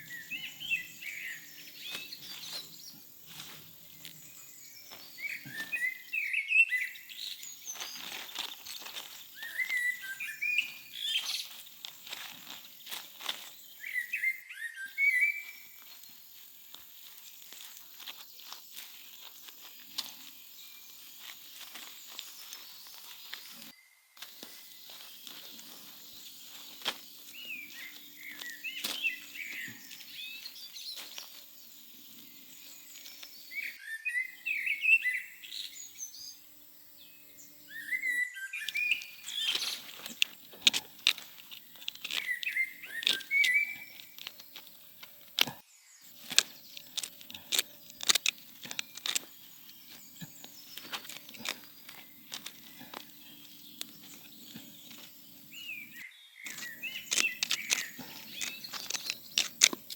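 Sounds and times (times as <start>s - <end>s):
small birds chirping: 0.0s - 59.9s
sharp clicks and knocks: 46.2s - 49.3s, 56.5s - 59.9s.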